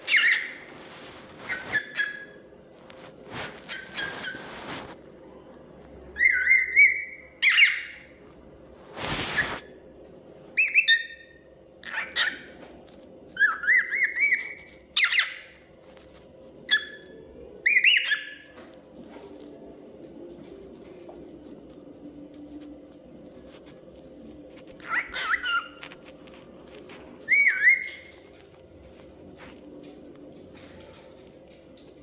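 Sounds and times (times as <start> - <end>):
cockatiel whistling and chirping: 0.0 - 0.7, 1.4 - 2.4, 3.7 - 4.8, 6.2 - 8.1, 10.6 - 12.6, 13.4 - 15.6, 17.6 - 18.6, 24.8 - 25.8, 27.2 - 28.2.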